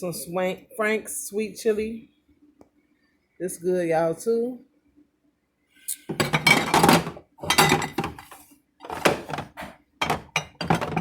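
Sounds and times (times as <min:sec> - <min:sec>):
bottles set down on shelves: 0:06.1 - 0:11.0
jars knocking and clattering: 0:06.1 - 0:11.0.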